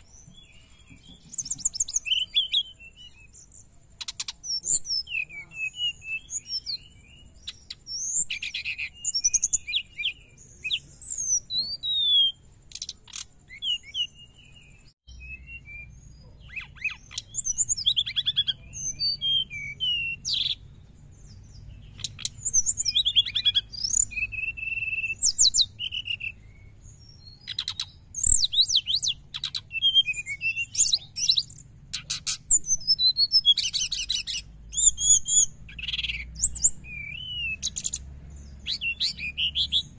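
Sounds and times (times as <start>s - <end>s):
bird twittering and trilling: 0.0s - 39.9s.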